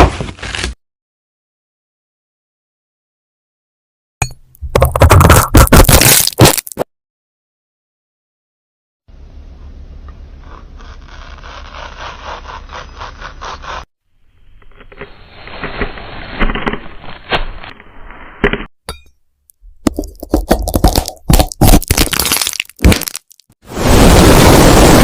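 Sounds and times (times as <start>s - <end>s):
knife slicing with scraping strokes: 0.0s - 0.8s, 10.4s - 13.9s.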